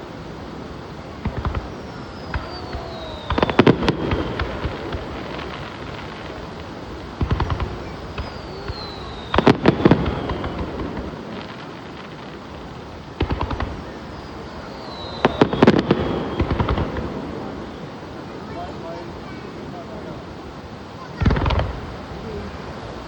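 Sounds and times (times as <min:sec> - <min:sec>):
fireworks bangs and crackles: 0:00.0 - 0:23.0
falling firework whistle: 0:01.2 - 0:12.4, 0:13.1 - 0:18.9.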